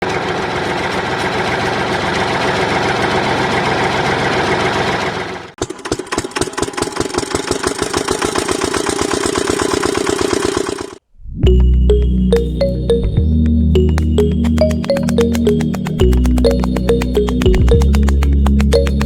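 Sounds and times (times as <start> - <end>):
rapid engine strokes: 0.0 - 11.0
small model engine running: 0.1 - 11.0.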